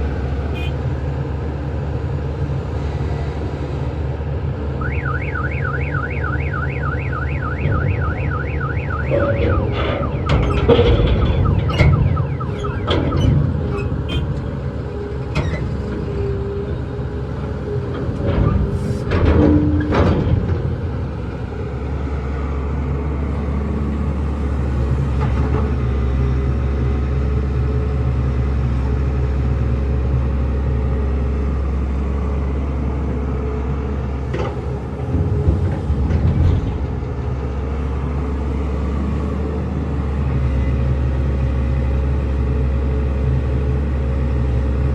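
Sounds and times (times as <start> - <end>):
diesel machinery engine drone: 0.0 - 44.9
machinery clanks and knocks: 7.5 - 16.8, 17.4 - 21.5, 34.2 - 38.7.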